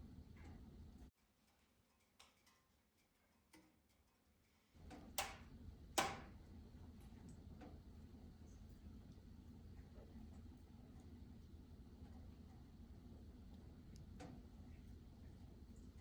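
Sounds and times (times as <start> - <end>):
low rumble of burning fire: 0.0 - 1.1, 4.7 - 16.0.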